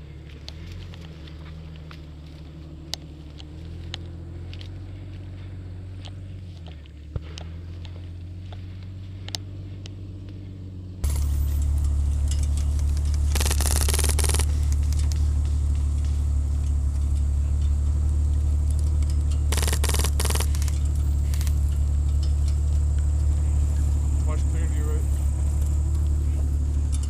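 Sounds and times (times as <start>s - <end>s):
vehicle engine droning: 0.0s - 27.0s
rapid clatter: 11.0s - 27.0s.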